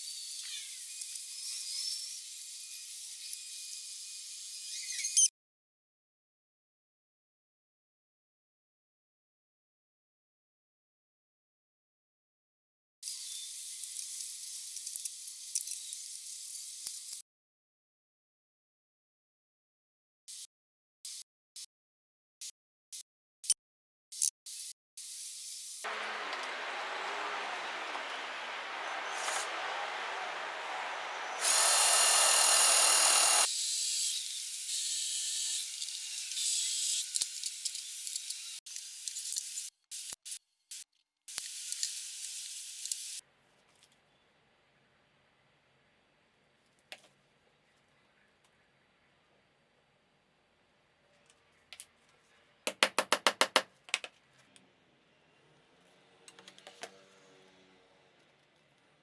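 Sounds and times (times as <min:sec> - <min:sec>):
power tool whining: 0:25.9 - 0:33.5.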